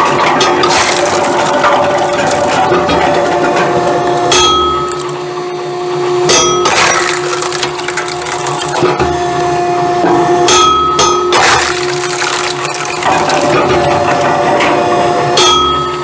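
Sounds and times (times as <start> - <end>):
hydraulic log splitter humming: 0.0 - 16.0
wood cracking and splintering: 0.6 - 2.8, 6.7 - 9.0, 11.4 - 14.3.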